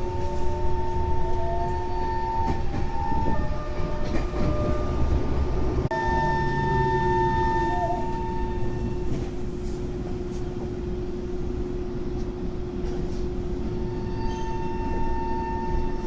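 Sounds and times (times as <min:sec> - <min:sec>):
high-pitched train whine: 0:00.0 - 0:12.0, 0:13.5 - 0:16.0
subway train hum and rumble: 0:00.0 - 0:16.0.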